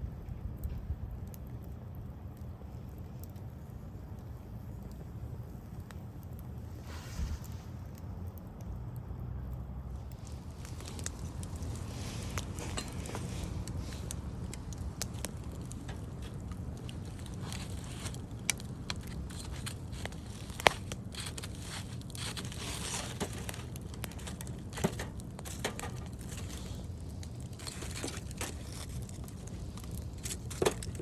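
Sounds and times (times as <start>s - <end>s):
campfire crackling and popping: 0.0s - 31.0s
low rumble: 4.2s - 31.0s.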